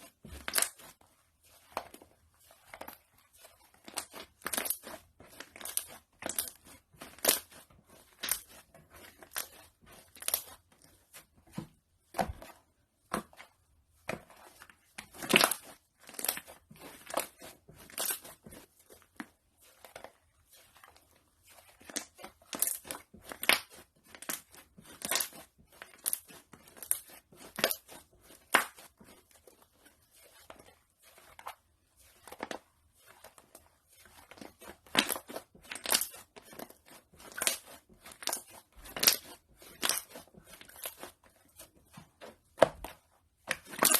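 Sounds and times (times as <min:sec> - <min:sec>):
slime crackling and popping: 0:03.9 - 0:07.5, 0:34.8 - 0:36.2, 0:43.5 - 0:43.9.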